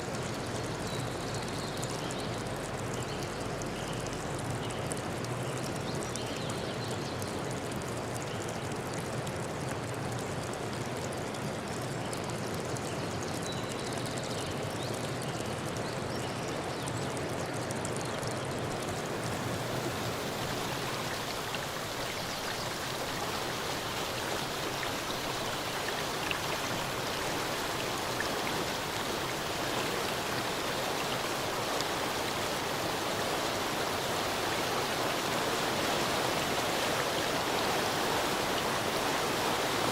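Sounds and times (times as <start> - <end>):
running water rushing: 18.2 - 39.9.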